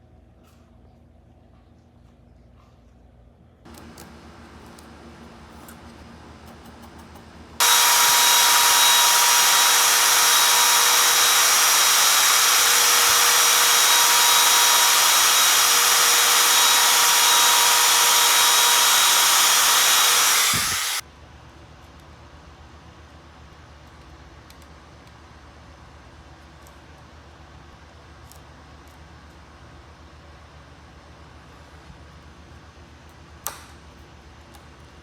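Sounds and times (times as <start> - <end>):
power tool running: 7.6 - 21.0.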